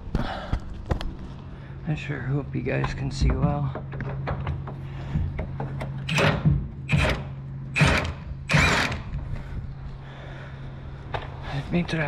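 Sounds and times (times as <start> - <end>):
steady low hum: 0.0 - 12.0
harsh power tool bursts: 6.1 - 9.1.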